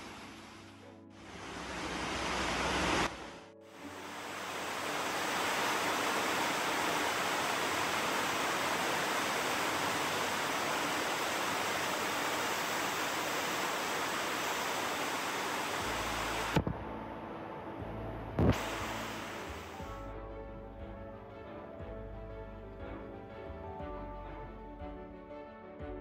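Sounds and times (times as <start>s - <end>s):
heavy rain falling: 1.2s - 16.6s, 18.4s - 19.9s.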